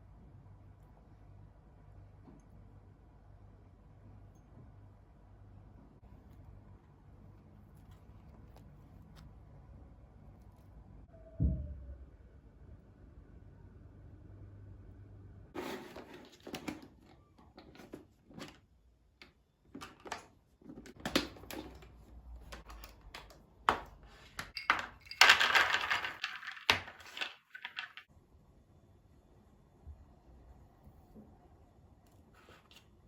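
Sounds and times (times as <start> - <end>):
kitchen clicks and knocks: 19.8 - 28.1.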